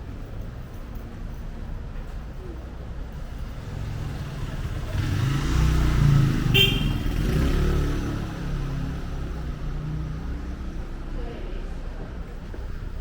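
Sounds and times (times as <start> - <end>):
vehicle passing with engine revving: 3.4 - 11.1.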